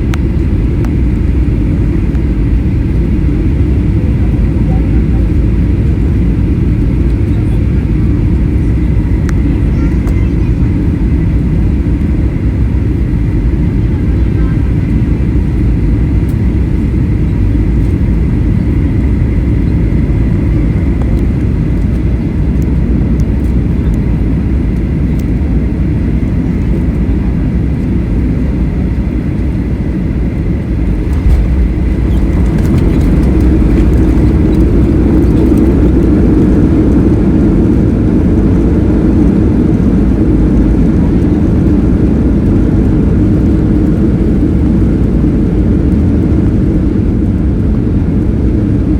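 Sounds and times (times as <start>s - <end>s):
jet engines and airflow rumble: 0.0s - 48.9s
brief bump: 31.1s - 34.7s.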